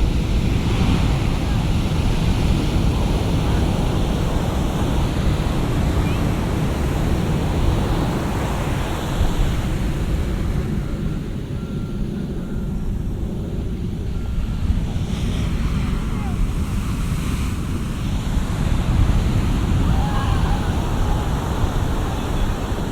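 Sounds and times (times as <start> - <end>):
ocean surf breaking: 0.0 - 12.2, 13.1 - 22.9.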